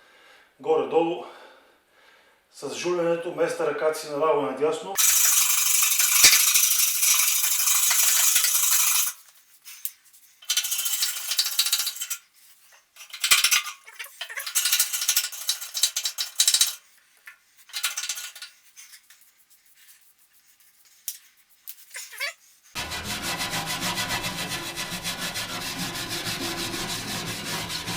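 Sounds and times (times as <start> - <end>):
hand tool scraping metal: 5.0 - 20.2, 20.8 - 27.9.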